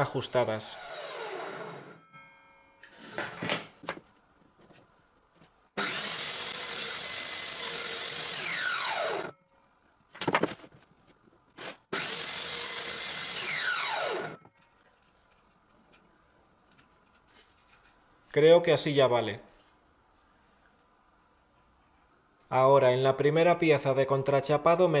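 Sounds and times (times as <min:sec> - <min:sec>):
table saw whining: 0:00.5 - 0:02.1, 0:05.8 - 0:09.4, 0:11.9 - 0:14.5.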